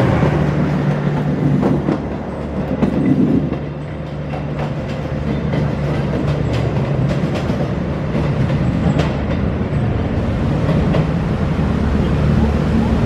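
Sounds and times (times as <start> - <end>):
low rumble of train: 0.0 - 13.0
train wheels clicking over joints: 0.1 - 11.4.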